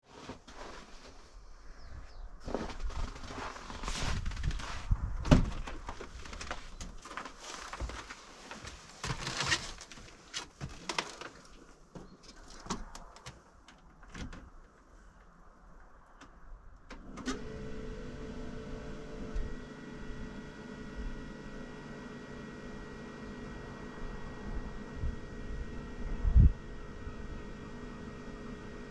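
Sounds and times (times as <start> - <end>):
diesel engine starting and idling: 17.0 - 28.9.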